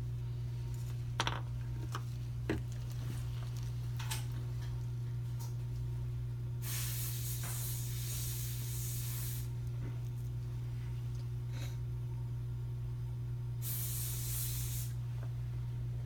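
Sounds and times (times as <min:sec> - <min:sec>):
steady low hum: 0:00.0 - 0:16.0
air syringe hissing: 0:06.6 - 0:09.5, 0:13.6 - 0:15.0.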